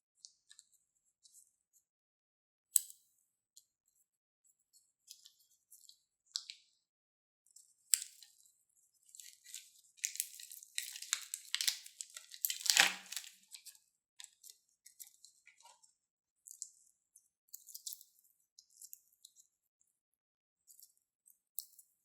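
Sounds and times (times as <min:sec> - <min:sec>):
crunchy slime crinkling and crunching: 0:09.2 - 0:13.7.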